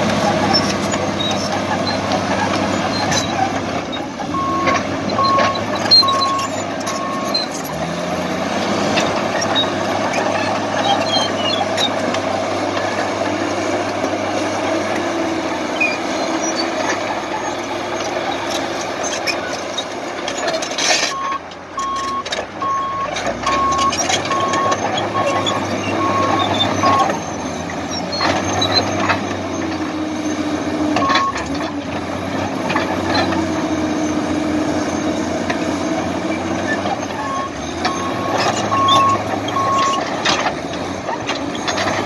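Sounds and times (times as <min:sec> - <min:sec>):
heavy vehicle engine running: 0:00.0 - 0:42.0
single-tone beeps: 0:04.4 - 0:07.3, 0:21.2 - 0:27.1.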